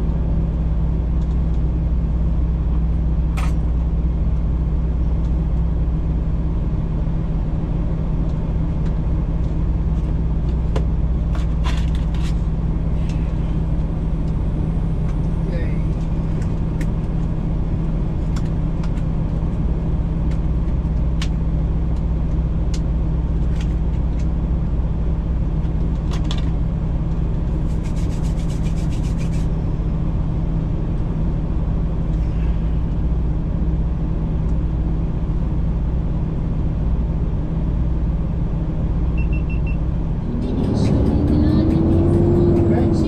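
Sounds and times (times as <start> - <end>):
truck diesel engine droning: 0.0 - 27.7, 29.4 - 43.0.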